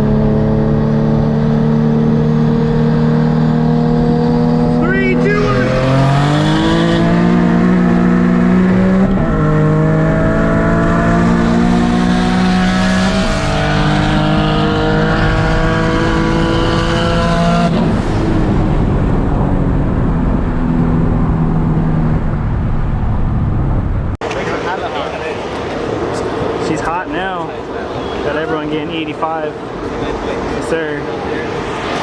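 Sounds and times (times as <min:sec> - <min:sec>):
car engine accelerating hard: 0:00.0 - 0:24.2.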